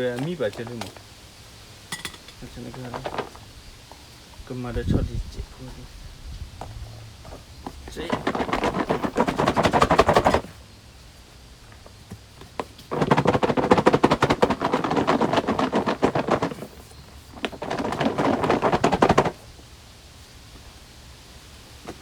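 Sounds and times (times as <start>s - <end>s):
rapid repeating knocks: 7.9s - 10.5s, 12.9s - 16.8s, 17.4s - 19.4s.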